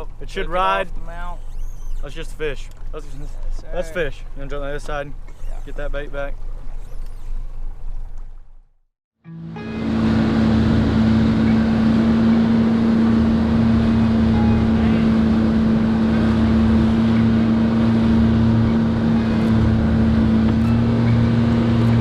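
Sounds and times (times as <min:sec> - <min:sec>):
outboard motor humming: 0:00.0 - 0:08.7, 0:09.3 - 0:22.0
water noise: 0:04.2 - 0:08.7, 0:09.3 - 0:22.0.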